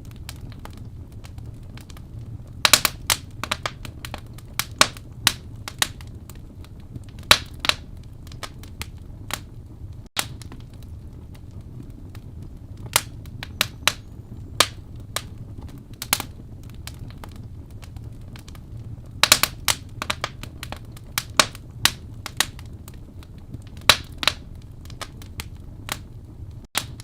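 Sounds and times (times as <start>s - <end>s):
fire rumbling: 0.0s - 27.0s
wood fire crackling: 0.0s - 27.0s.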